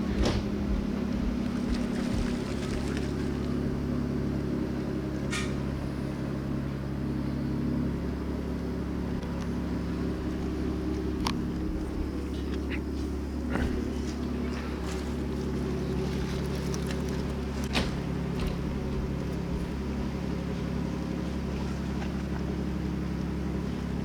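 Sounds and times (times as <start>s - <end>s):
engine humming: 0.0s - 24.0s.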